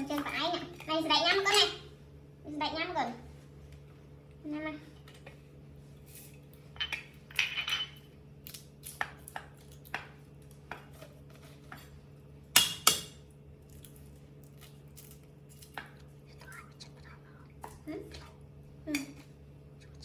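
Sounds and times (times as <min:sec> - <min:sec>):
steady low hum: 0:00.0 - 0:20.0
knife and utensils clinking: 0:06.0 - 0:08.1, 0:12.6 - 0:16.0.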